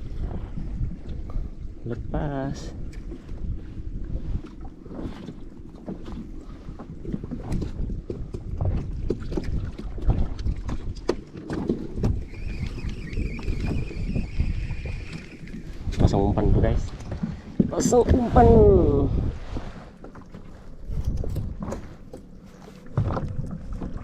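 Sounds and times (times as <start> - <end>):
waves slapping boat hull: 0.0 - 24.0
wind rumbling on microphone: 0.0 - 24.0
knocks against boat: 22.8 - 24.0.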